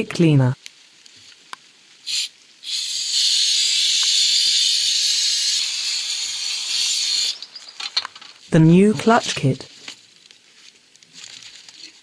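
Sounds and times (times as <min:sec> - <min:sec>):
aerosol can spraying: 0:02.0 - 0:07.4.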